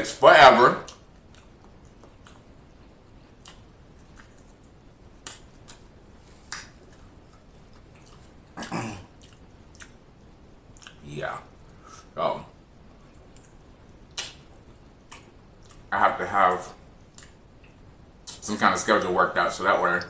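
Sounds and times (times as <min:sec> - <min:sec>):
wet mouth clicks and lip smacks: 0:03.4 - 0:05.9, 0:09.2 - 0:10.0, 0:10.7 - 0:11.0, 0:13.2 - 0:15.9, 0:17.1 - 0:18.4.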